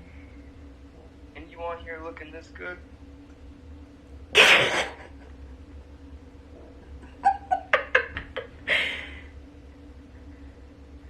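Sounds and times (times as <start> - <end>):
person laughing: 7.0 - 9.2.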